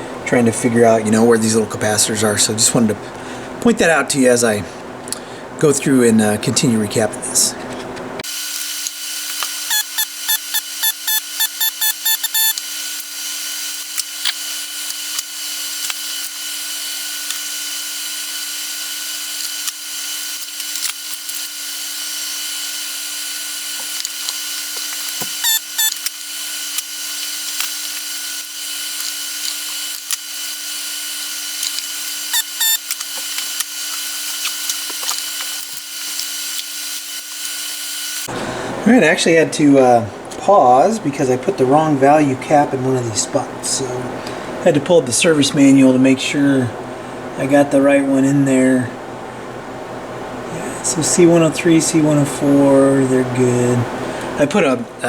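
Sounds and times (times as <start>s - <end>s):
steady hum and hiss: 0.0s - 55.0s.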